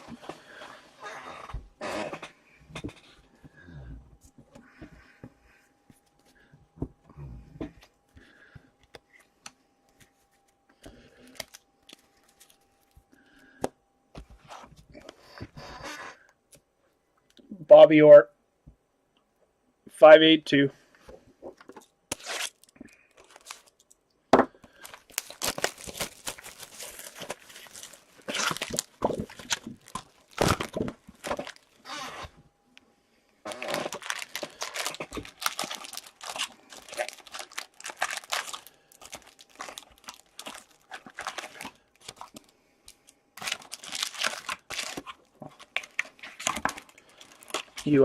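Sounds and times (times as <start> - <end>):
wrappers tearing and crinkling: 22.1 - 24.0, 24.7 - 32.3, 33.4 - 48.0.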